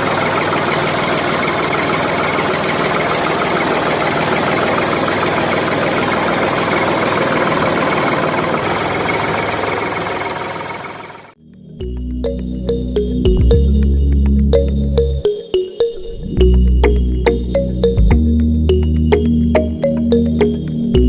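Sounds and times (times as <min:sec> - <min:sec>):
motor running with rattling beat: 0:00.0 - 0:12.4.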